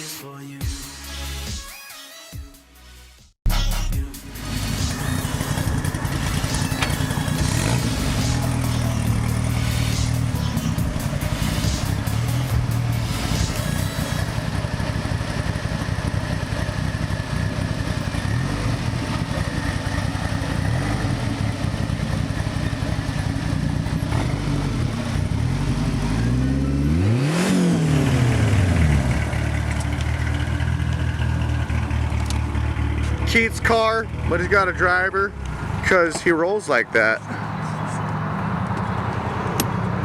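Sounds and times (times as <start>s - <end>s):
car engine running: 4.2s - 40.0s.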